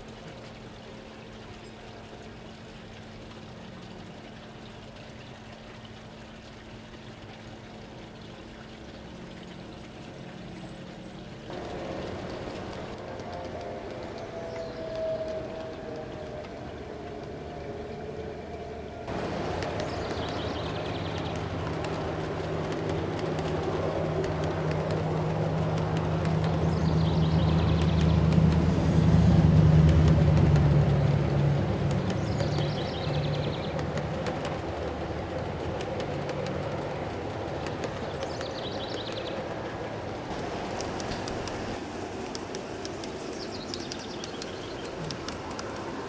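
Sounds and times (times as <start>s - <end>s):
wheels clicking over rail joints: 11.4s - 46.0s.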